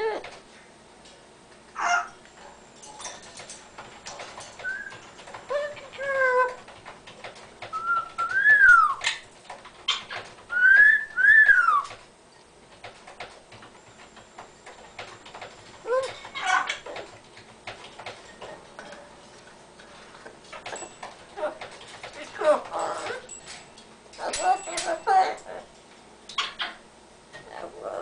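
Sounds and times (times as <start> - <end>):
parrot whistling and calling: 4.6 - 6.6, 7.7 - 9.2, 10.5 - 12.0.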